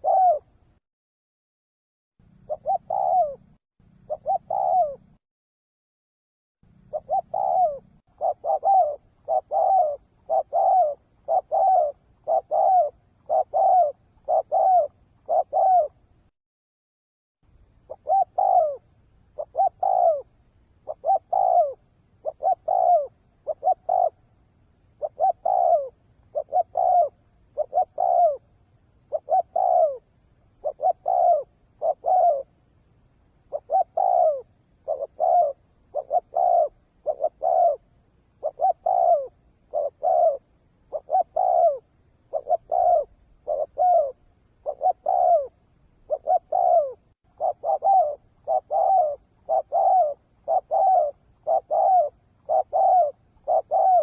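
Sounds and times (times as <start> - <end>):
dove cooing: 0.0 - 0.6, 2.3 - 5.2, 6.8 - 16.1, 17.8 - 32.6, 33.4 - 54.0.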